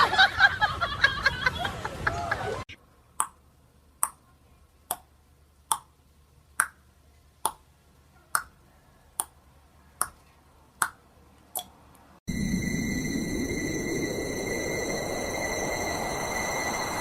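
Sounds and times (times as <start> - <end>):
high-pitched tones: 12.3 - 17.0.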